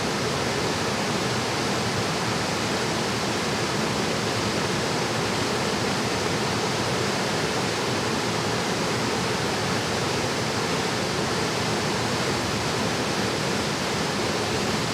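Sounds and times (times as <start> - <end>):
stream water rushing: 9.5 - 14.9.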